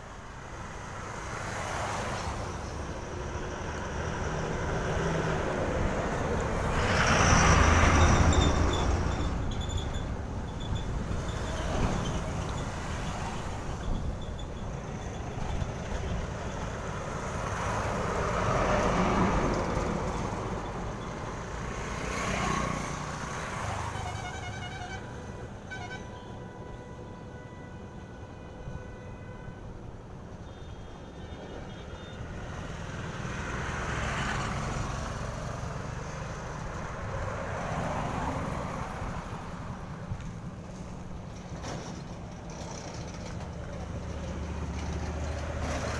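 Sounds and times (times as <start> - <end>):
heavy trucks passing: 0.0 - 28.8, 29.4 - 45.9
truck horn: 23.6 - 29.8.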